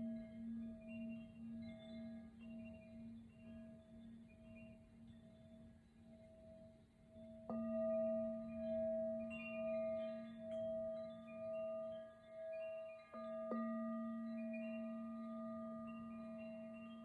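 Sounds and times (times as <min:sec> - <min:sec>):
singing bowl ringing: 0:00.0 - 0:17.0.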